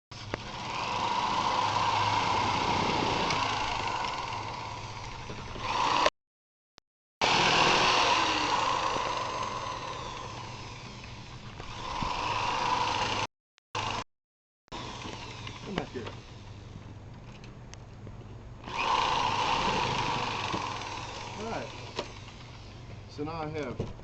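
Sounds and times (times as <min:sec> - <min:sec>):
power saw cutting plastic pipe: 0:00.2 - 0:06.1, 0:07.2 - 0:14.1, 0:18.6 - 0:22.8.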